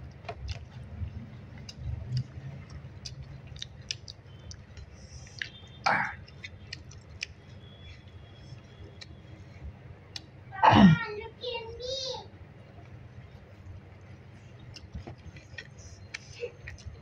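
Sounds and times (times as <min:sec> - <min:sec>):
person chewing with mouth clicks: 0:01.5 - 0:07.4, 0:14.6 - 0:17.0.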